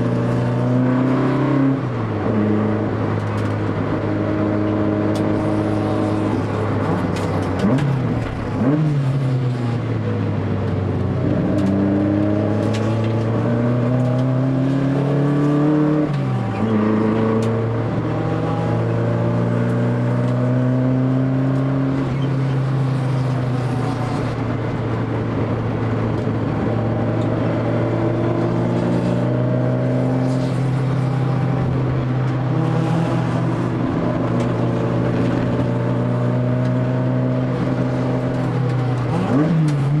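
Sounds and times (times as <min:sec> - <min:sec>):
racing car engine revving: 0:11.1 - 0:40.0.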